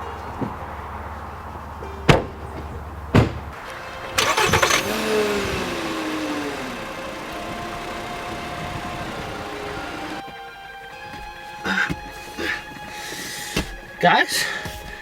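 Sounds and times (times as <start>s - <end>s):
car engine starting and idling: 0.0s - 10.2s.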